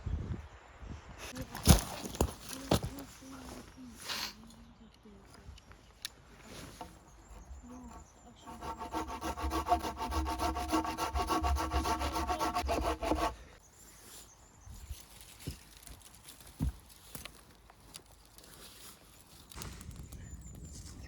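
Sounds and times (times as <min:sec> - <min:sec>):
hand saw cutting wood: 0:07.9 - 0:13.4.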